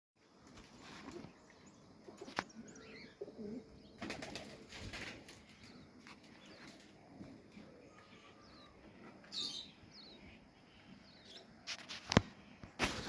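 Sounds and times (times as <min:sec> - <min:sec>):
pigeons cooing: 0:02.0 - 0:05.6
pigeon wings flapping: 0:04.0 - 0:05.5, 0:12.8 - 0:13.0.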